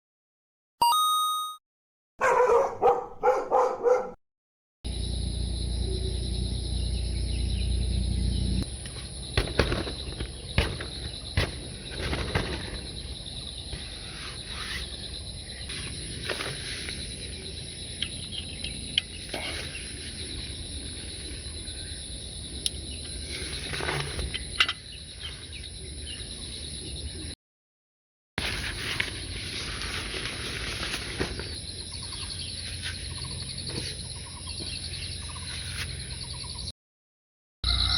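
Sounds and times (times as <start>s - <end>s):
low rumble: 4.9s - 8.6s
high-pitched insect chorus: 4.9s - 27.4s, 29.2s - 36.7s, 37.7s - 37.9s.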